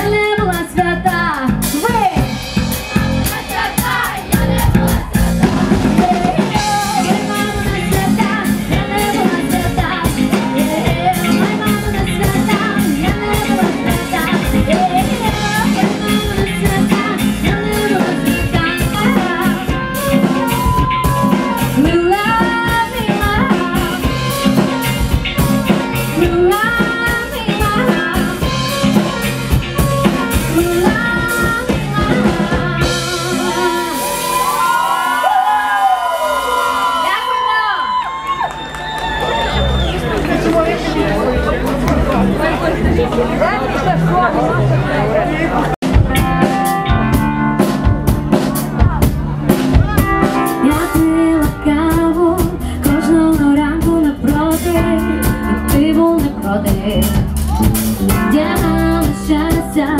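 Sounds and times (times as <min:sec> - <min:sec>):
melodic lead line: 0:00.0 - 0:35.0, 0:45.8 - 0:59.9
drum kit: 0:00.0 - 0:43.3, 0:45.7 - 0:59.9
bass: 0:00.0 - 0:59.9
guitar: 0:00.0 - 0:59.9.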